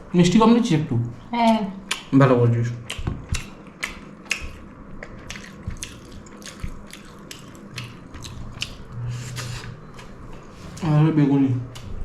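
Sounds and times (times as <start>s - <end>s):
chewing and lip smacks: 1.4s - 2.1s, 2.8s - 10.2s.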